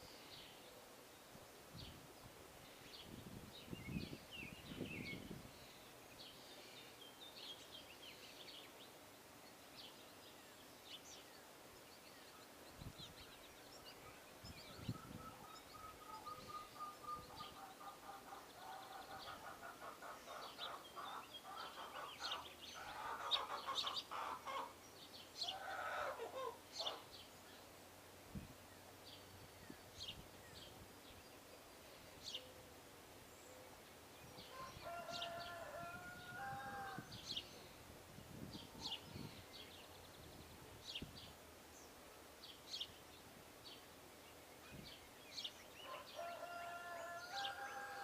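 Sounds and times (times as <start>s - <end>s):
birds chirping: 3.6s - 27.7s
rapid pulsed bird calls: 14.0s - 24.8s.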